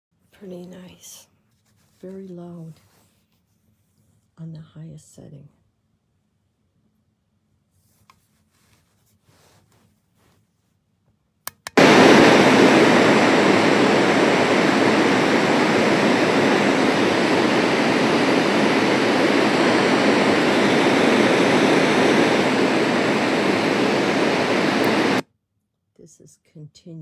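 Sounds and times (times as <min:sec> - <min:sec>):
white noise machine rushing: 0:11.8 - 0:25.2.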